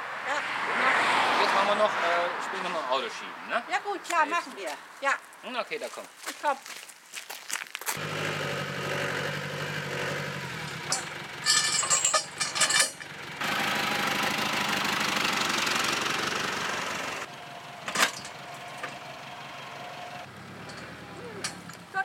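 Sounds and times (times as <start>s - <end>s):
vehicle engine running: 8.0s - 22.0s.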